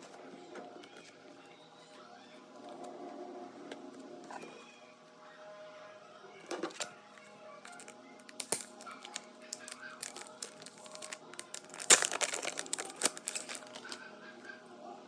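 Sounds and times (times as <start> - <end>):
packaging crinkling and rustling: 6.7 - 14.0.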